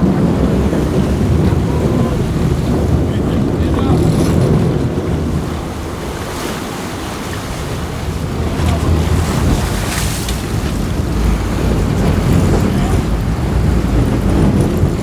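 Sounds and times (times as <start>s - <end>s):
waves and rushing water: 0.0s - 15.0s
wind buffeting microphone: 0.0s - 15.0s.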